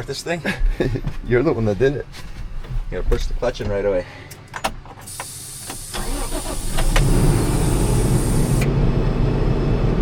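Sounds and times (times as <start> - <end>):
tractor engine starting and idling: 5.1 - 10.0.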